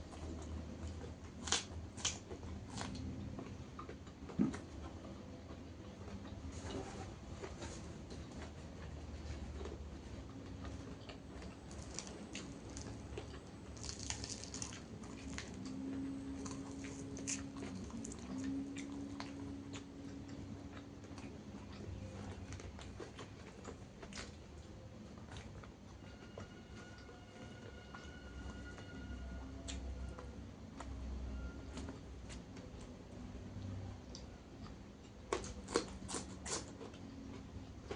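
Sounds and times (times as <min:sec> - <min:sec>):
person chewing crunchy food: 0:00.0 - 0:29.0, 0:31.7 - 0:37.9
low steady hum: 0:00.0 - 0:37.9.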